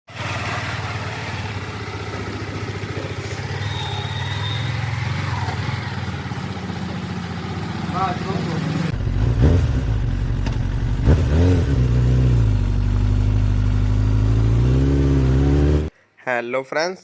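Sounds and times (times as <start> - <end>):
motorcycle engine running: 0.1 - 15.9.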